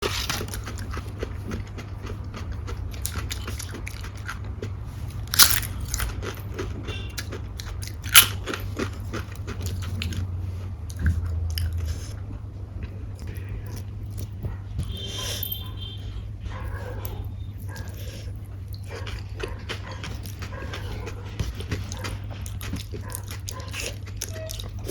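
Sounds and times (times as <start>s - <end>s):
person chewing crunchy food: 0.0s - 15.6s, 16.4s - 24.9s
loud sharp cracks: 5.3s - 6.0s, 8.1s - 8.4s.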